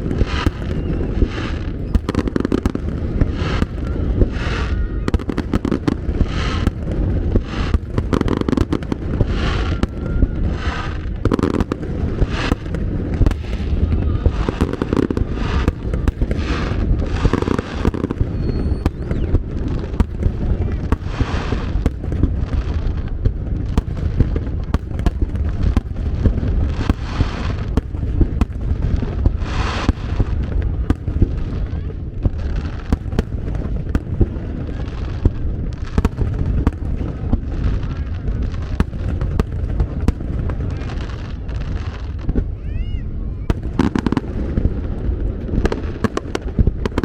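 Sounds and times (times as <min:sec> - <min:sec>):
firework shells bursting: 0:00.0 - 0:31.4
fireworks crackling: 0:00.0 - 0:47.0
low rumble: 0:00.0 - 0:47.0.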